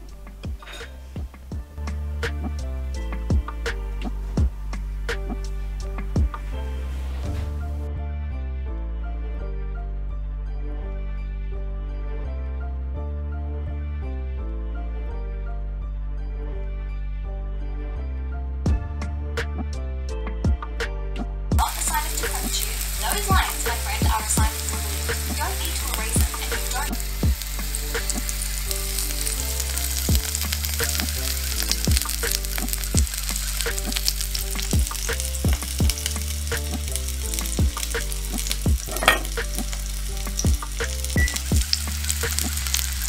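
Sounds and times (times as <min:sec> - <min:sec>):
music with bass line: 0:00.0 - 0:43.0
food sizzling in a pan: 0:21.6 - 0:43.0.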